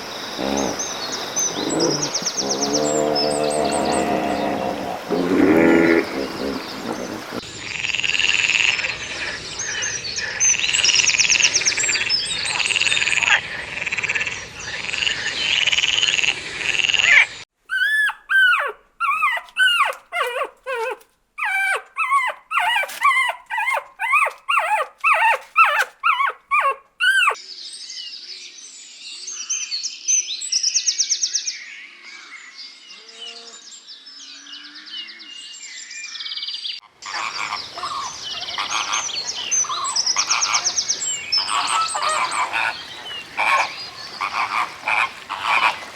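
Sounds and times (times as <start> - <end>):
animal chirping: 0.4 - 7.4, 17.1 - 27.4, 37.0 - 45.8
high rising and falling yelps: 17.7 - 27.4.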